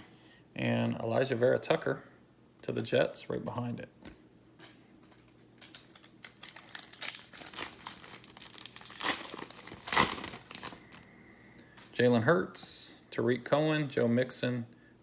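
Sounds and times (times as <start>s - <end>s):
wrapper tearing and crinkling: 5.2s - 11.1s.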